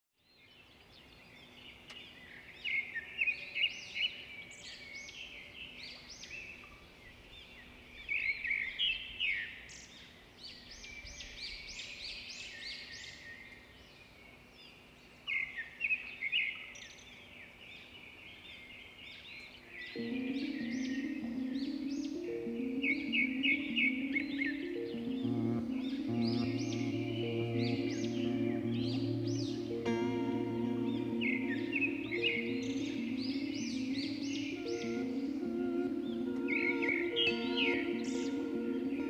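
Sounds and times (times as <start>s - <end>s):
birds chirping and twittering: 0.3s - 39.0s
faint steady hum: 19.6s - 39.0s.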